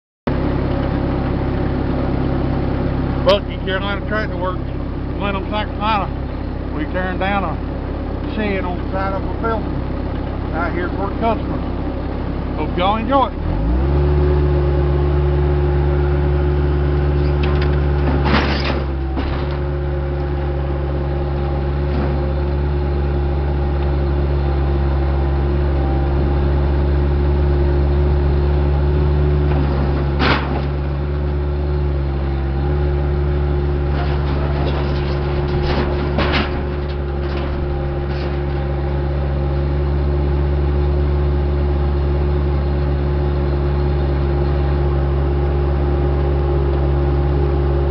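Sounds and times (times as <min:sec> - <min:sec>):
diesel engine running: 0:00.3 - 0:47.9
sharp knocks and clunks: 0:17.2 - 0:19.7, 0:29.4 - 0:30.8, 0:33.9 - 0:38.7.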